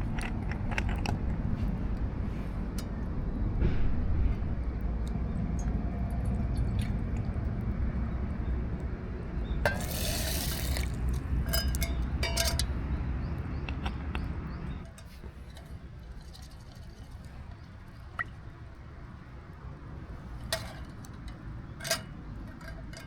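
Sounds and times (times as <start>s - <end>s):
low rumble: 0.0s - 8.8s
liquid pouring: 9.7s - 11.2s
cookware clinking: 9.7s - 12.7s.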